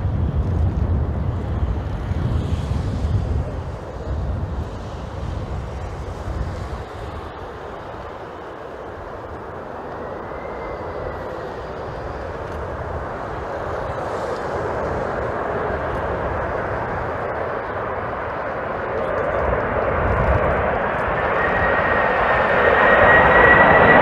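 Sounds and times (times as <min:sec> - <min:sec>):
jet engine rush: 0:00.0 - 0:24.0
wind rumbling on microphone: 0:00.0 - 0:24.0.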